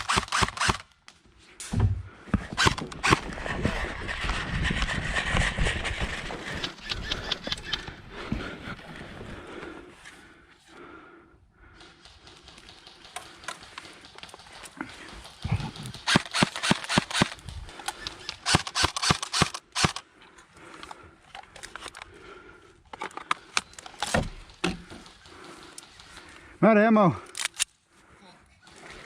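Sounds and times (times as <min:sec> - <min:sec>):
airsoft guns firing: 0:00.0 - 0:00.8, 0:11.8 - 0:17.4.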